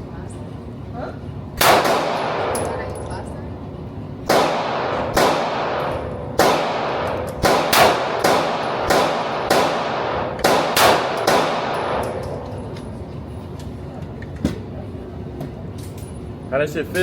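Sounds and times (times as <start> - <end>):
gunshots with ringing echo: 1.6 - 2.7, 4.2 - 12.4.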